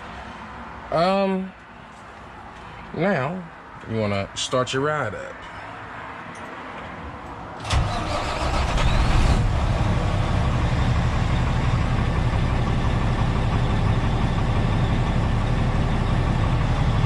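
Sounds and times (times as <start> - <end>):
truck diesel engine starting: 7.6 - 17.0.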